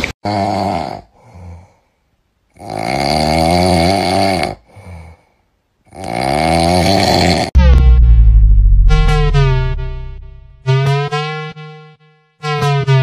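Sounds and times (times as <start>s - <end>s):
loud rattly snoring: 2.6s - 4.6s, 5.9s - 7.5s.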